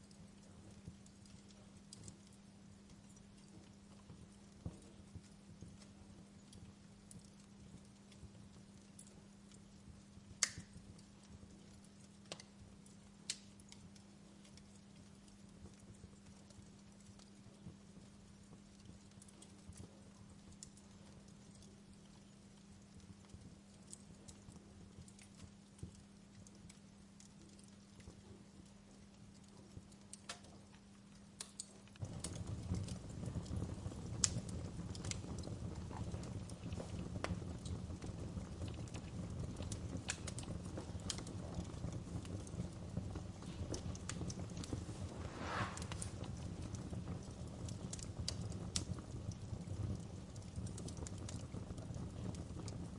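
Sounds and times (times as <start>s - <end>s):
faint low hum: 0.0s - 52.9s
wood fire crackling: 0.0s - 52.9s
sharp pops of burning wood: 10.3s - 11.1s, 13.2s - 13.8s, 31.4s - 52.8s
low flame roar: 32.0s - 52.9s.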